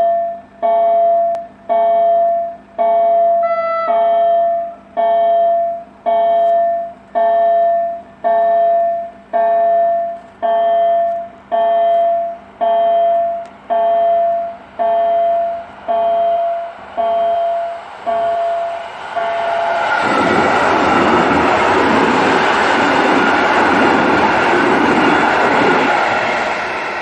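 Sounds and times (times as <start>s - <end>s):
level crossing warning bell: 0.0s - 19.9s
approaching train: 0.0s - 27.0s.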